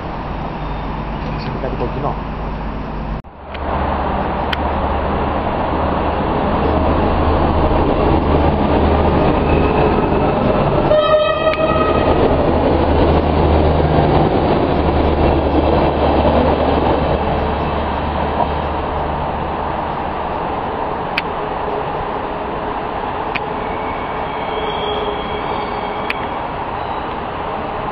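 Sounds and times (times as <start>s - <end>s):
diesel railbus engine drone: 0.0s - 27.9s
train horn toot: 10.9s - 12.4s, 23.5s - 27.0s.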